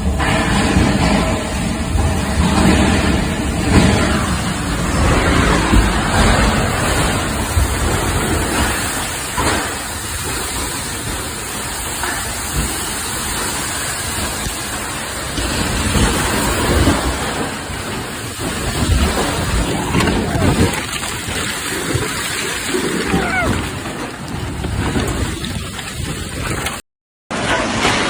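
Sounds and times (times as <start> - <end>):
low rumbling: 0.0 - 26.8
heavy rain and wind: 0.0 - 28.0.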